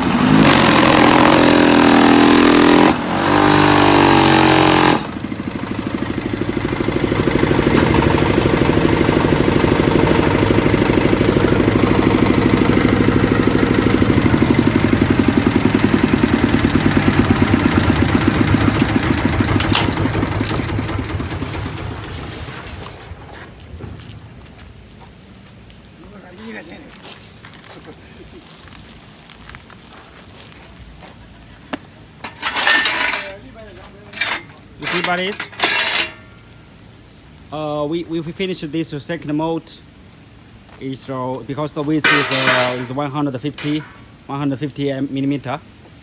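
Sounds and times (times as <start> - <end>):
diesel engine chugging: 0.0 - 24.5.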